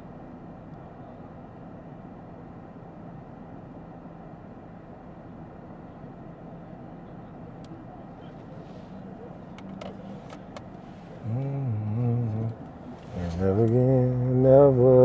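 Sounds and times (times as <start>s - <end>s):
road and tyre noise in car: 0.0s - 15.0s
person humming: 11.2s - 15.0s.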